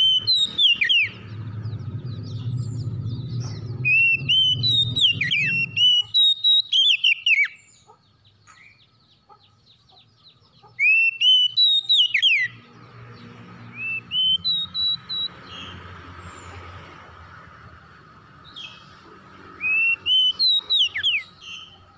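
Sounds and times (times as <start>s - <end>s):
bird singing whistled notes: 0.0s - 7.9s, 10.8s - 12.6s, 13.7s - 15.8s, 19.6s - 21.8s.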